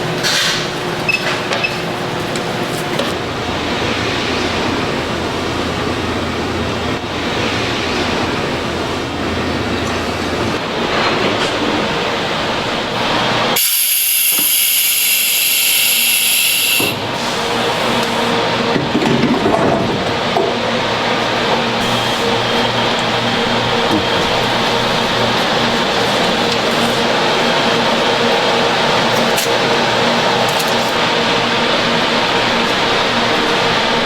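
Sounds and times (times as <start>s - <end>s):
factory machinery clattering: 0.0s - 34.0s
loud high hiss: 13.6s - 18.2s.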